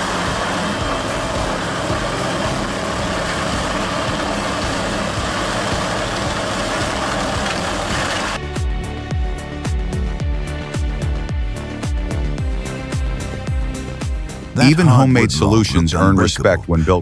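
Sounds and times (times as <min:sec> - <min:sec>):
wood grinder running under load: 0:00.0 - 0:08.4
music: 0:00.0 - 0:17.0.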